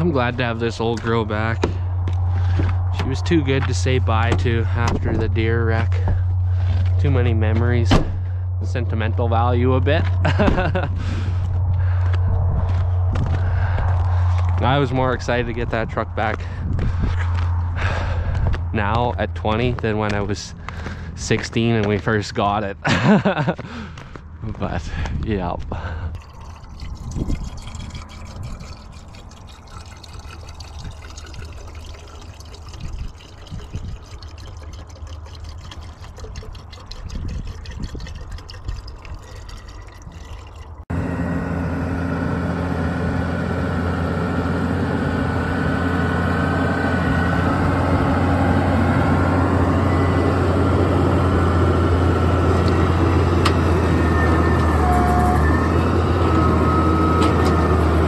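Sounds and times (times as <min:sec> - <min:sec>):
low hum: 0:00.0 - 0:24.6, 0:26.1 - 0:58.0
vehicle engine running: 0:00.0 - 0:25.9, 0:40.9 - 0:58.0.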